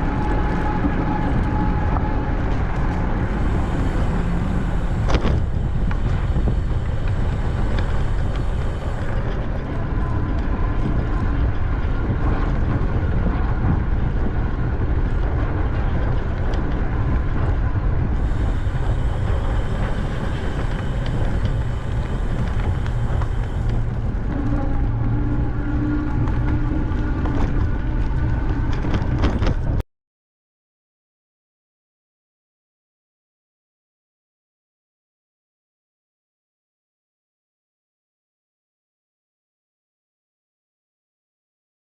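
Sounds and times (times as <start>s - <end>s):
road and tyre noise: 0.0s - 29.8s
wind rushing over microphone: 0.0s - 29.8s.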